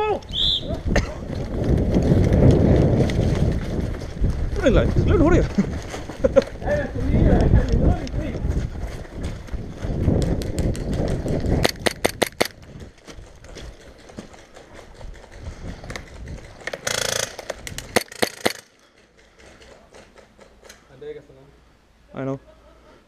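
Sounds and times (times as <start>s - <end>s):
wind on microphone: 0.0s - 13.8s, 14.9s - 16.6s
rumbling from running movement: 0.7s - 18.0s.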